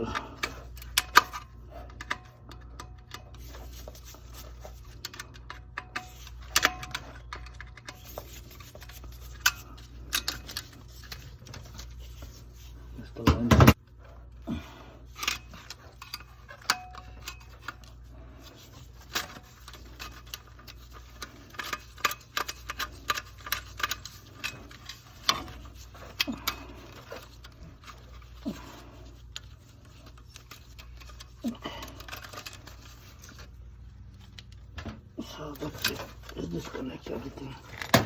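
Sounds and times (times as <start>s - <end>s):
hand tools clicking and tapping: 0.0s - 11.9s, 15.2s - 32.8s.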